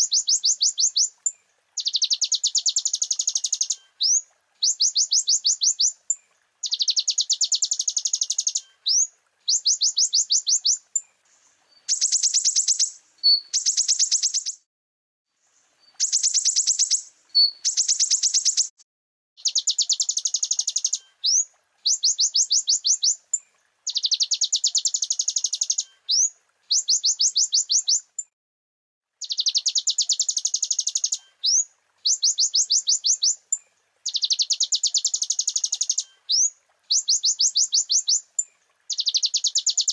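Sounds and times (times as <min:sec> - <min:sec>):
bird singing high trills: 0:11.8 - 0:14.6, 0:15.9 - 0:18.8, 0:38.9 - 0:39.9.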